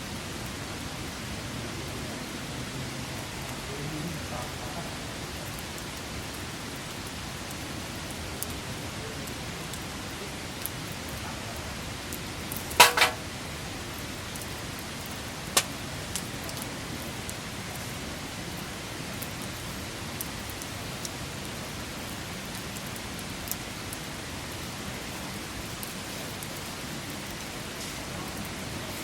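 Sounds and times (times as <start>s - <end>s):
campfire hiss: 0.0s - 29.0s
campfire crackling and popping: 9.6s - 27.7s.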